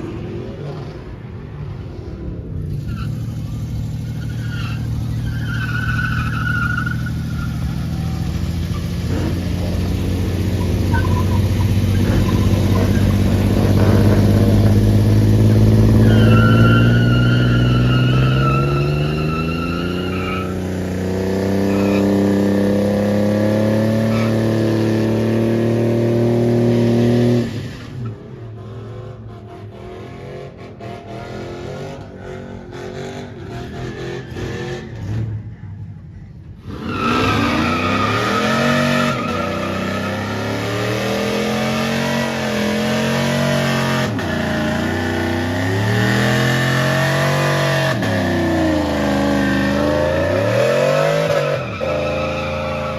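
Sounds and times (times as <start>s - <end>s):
tires squealing: 0.0s - 52.9s
engine revving hard: 36.7s - 52.9s.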